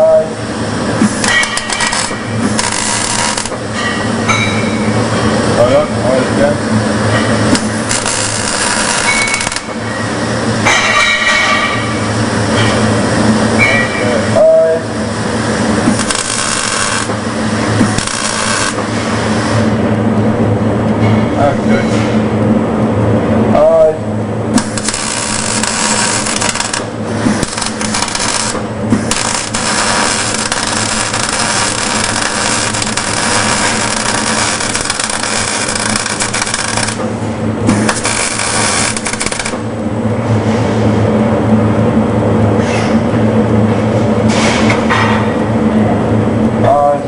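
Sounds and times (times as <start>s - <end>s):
welding arc crackling hiss: 0.0s - 4.4s, 5.1s - 19.7s, 24.5s - 39.7s
electrical hum: 0.0s - 47.0s.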